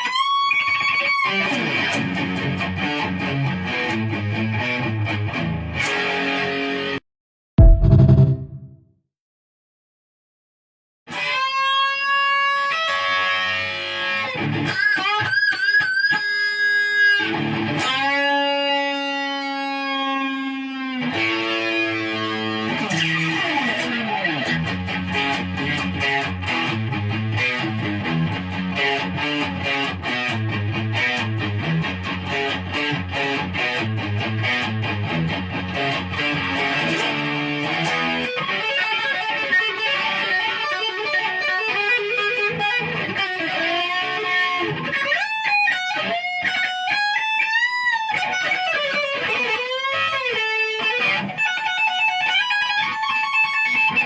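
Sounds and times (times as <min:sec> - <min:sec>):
electric guitar solo: 0:00.0 - 0:07.0, 0:11.1 - 0:54.0
low chugging guitar riff: 0:07.6 - 0:08.6, 0:17.2 - 0:38.3.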